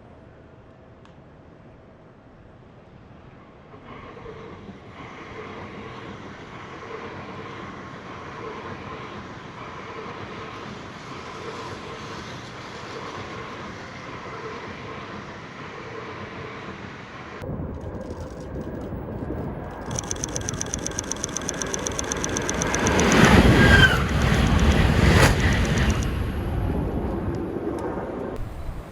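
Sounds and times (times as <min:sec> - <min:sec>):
train running: 0:03.9 - 0:27.1
faint held tone: 0:19.7 - 0:26.1.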